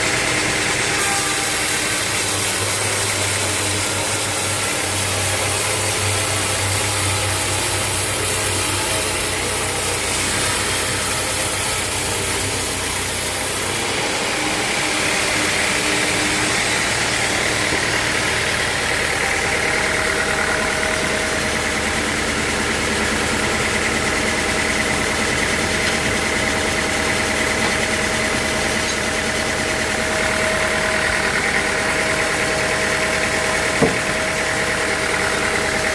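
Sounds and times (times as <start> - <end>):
machinery whine: 0.0 - 35.9
sawmill machinery hum: 0.0 - 35.9.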